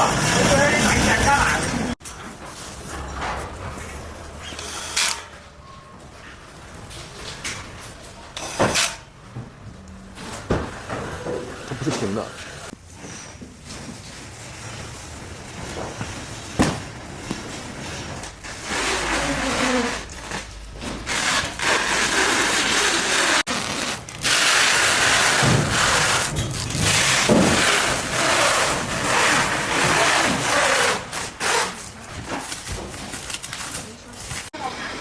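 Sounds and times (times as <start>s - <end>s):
scraping and rubbing: 10.8s - 34.6s.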